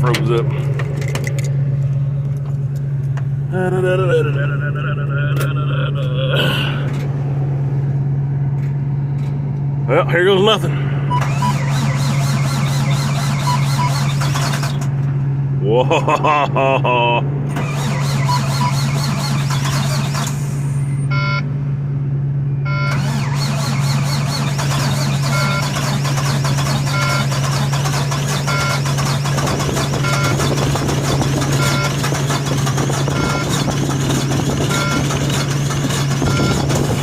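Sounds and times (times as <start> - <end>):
diesel engine cranking: 0.0 - 21.5, 22.6 - 37.0
truck warning beep: 11.1 - 14.4, 17.9 - 20.0, 20.8 - 21.5, 22.6 - 30.6, 31.4 - 32.1, 32.9 - 33.8, 34.6 - 35.4, 36.2 - 37.0.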